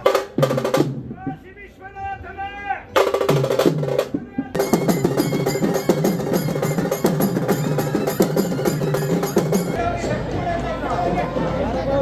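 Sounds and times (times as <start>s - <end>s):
fast dense drumming: 3.0s - 9.8s
pitched percussion ringing: 4.5s - 9.8s.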